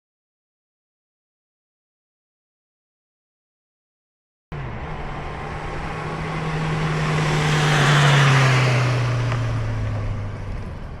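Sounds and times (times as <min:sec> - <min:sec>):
vehicle driving past: 0:04.6 - 0:11.0.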